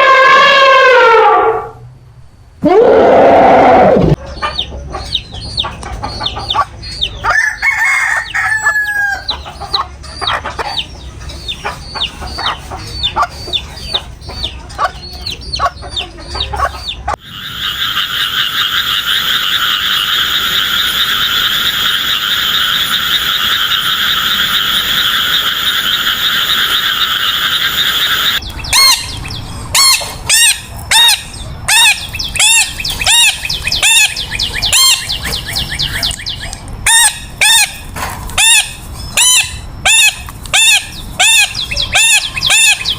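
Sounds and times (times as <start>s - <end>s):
drawn-out crowing call: 0.0s - 1.7s, 6.6s - 10.0s
loud repeated bird calls: 2.6s - 42.9s
chickens clucking: 4.1s - 42.9s
dense frog chorus: 9.1s - 42.9s.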